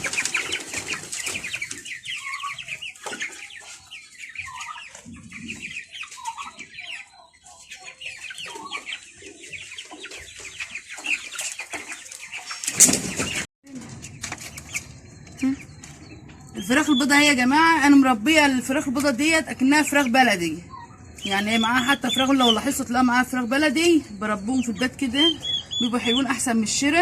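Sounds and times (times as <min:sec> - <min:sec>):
chickens clucking: 0:00.0 - 0:27.0
chicks peeping: 0:00.0 - 0:27.0.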